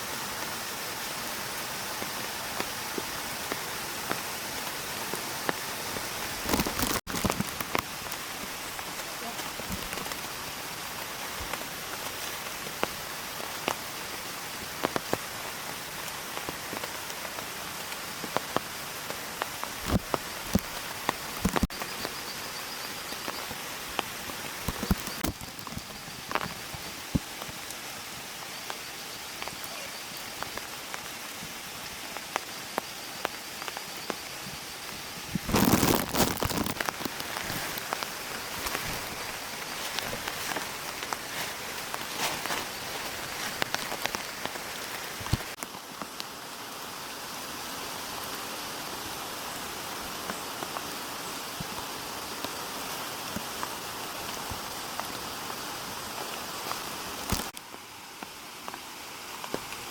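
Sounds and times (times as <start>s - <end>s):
steady rain hiss: 0.0s - 59.9s
raindrops ticking on surface: 1.4s - 47.1s, 48.0s - 59.9s
loud rustle: 35.3s - 44.2s.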